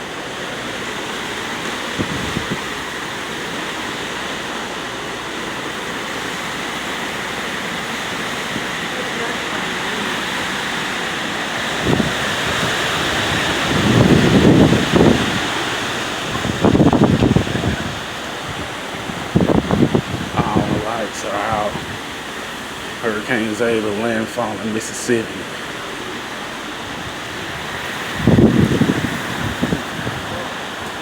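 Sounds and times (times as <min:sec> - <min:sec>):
rushing storm noise: 0:00.0 - 0:31.0
wind buffeting microphone: 0:01.9 - 0:02.8, 0:11.5 - 0:23.0, 0:25.6 - 0:31.0.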